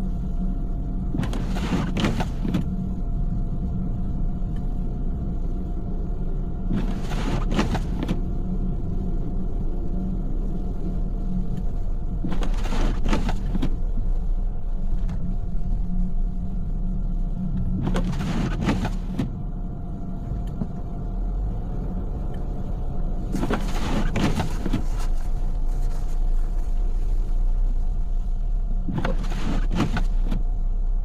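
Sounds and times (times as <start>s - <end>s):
car cabin driving rumble: 0.0s - 31.0s
windshield wipers swishing: 1.1s - 2.9s, 6.6s - 8.3s, 10.8s - 15.3s, 17.4s - 19.4s, 23.2s - 27.9s, 28.7s - 30.6s.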